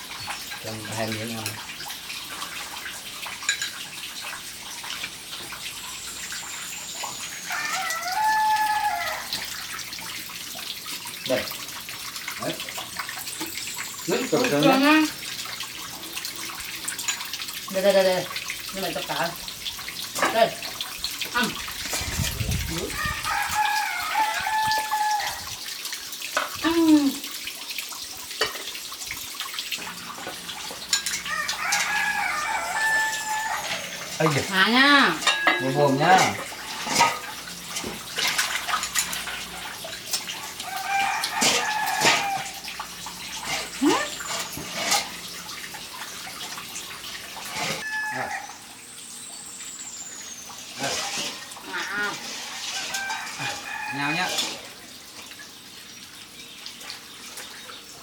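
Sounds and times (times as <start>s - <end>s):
running water: 0.0s - 58.0s
rooster crowing: 7.4s - 9.6s, 22.9s - 25.5s, 31.2s - 34.2s, 40.3s - 42.7s, 47.8s - 48.7s, 52.4s - 54.6s.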